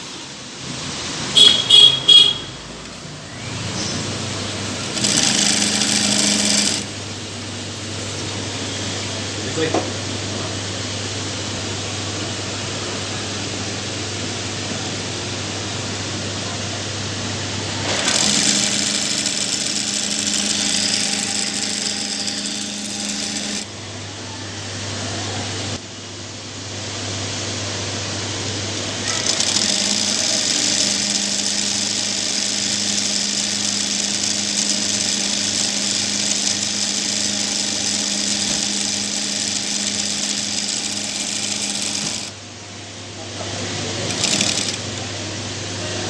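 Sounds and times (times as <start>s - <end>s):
sewing machine stitching: 2.8s - 7.1s, 17.8s - 23.7s, 28.8s - 42.4s, 44.0s - 45.0s.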